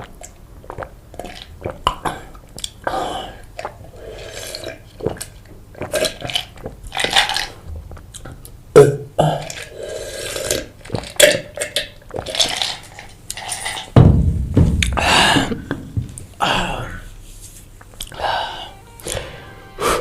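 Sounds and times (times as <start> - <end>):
chewing food: 0.0 - 2.9
loud burp: 8.8 - 9.7.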